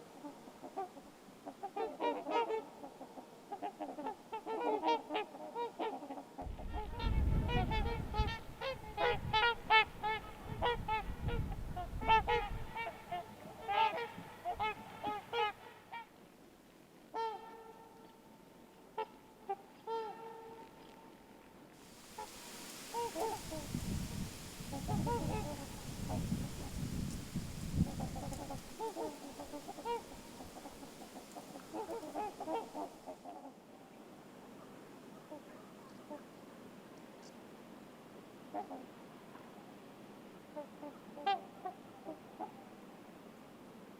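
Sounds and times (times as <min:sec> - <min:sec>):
swans honking: 0:21.9 - 0:33.2.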